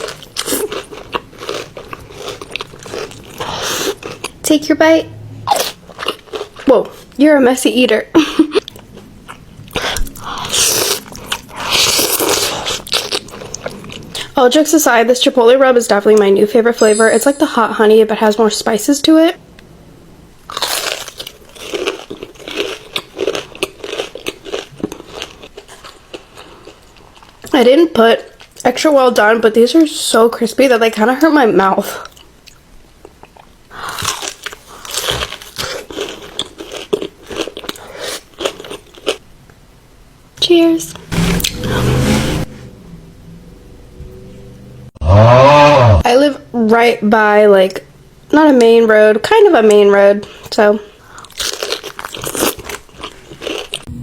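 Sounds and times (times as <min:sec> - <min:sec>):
crunchy chewing of fried chicken: 0:00.0 - 0:04.4, 0:05.5 - 0:07.2, 0:08.8 - 0:14.4, 0:20.5 - 0:27.5, 0:32.1 - 0:39.3, 0:50.3 - 0:53.9.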